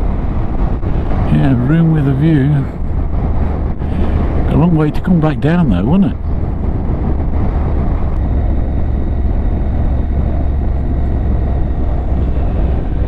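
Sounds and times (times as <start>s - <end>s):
motorcycle engine drone: 0.0s - 13.0s
road noise: 0.0s - 13.0s
wind noise: 0.0s - 13.0s.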